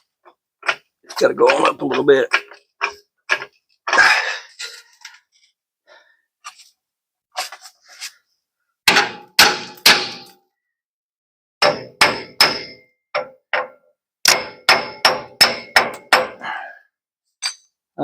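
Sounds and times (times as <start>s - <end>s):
hammer striking metal: 8.9s - 10.4s, 11.6s - 16.4s.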